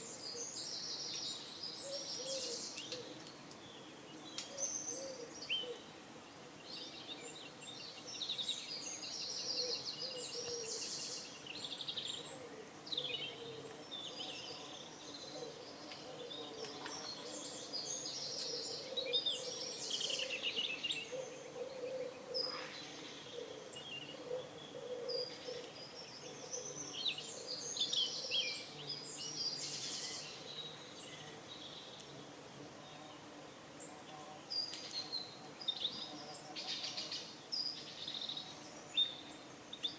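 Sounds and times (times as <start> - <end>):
songbirds chirping and trilling: 0.0 - 39.9
pigeons cooing: 18.2 - 20.4, 21.1 - 26.8.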